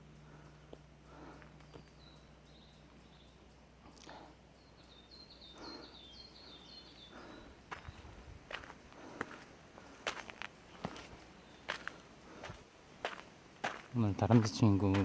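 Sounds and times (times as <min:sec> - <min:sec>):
small bird chirping: 0:00.0 - 0:09.0
faint footsteps on trail: 0:00.0 - 0:15.0.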